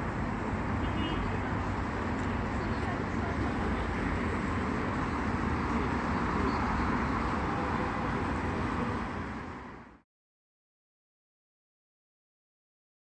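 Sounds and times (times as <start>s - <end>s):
low rumble of traffic: 0.0s - 10.0s.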